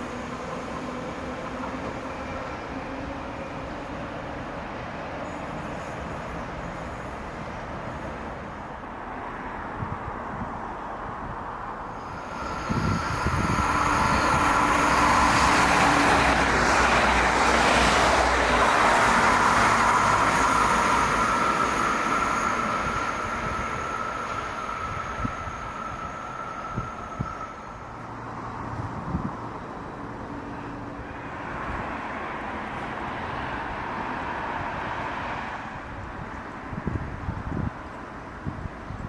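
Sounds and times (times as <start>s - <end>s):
electric train passing by: 0.0s - 39.0s
steady high whine: 11.9s - 16.4s.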